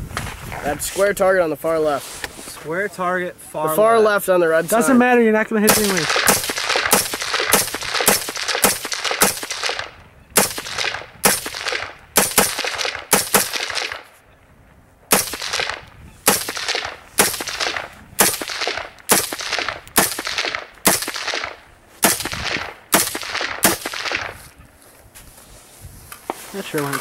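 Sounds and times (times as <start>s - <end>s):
rifle shots with echo: 5.7s - 14.2s, 15.1s - 24.5s.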